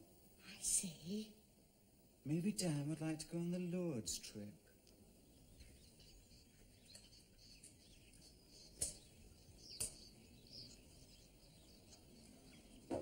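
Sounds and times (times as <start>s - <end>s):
faint high bird chirps: 5.2s - 13.0s.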